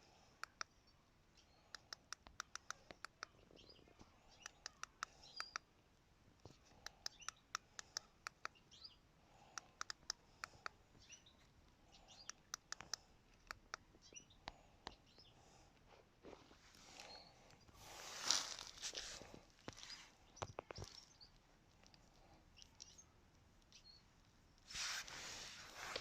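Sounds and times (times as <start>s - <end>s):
faint bird chirps: 0.0s - 5.8s, 6.4s - 15.4s, 16.7s - 24.2s
faint sharp clicks: 0.4s - 0.8s, 1.7s - 3.4s, 4.0s - 5.7s, 6.4s - 8.6s, 9.5s - 15.2s.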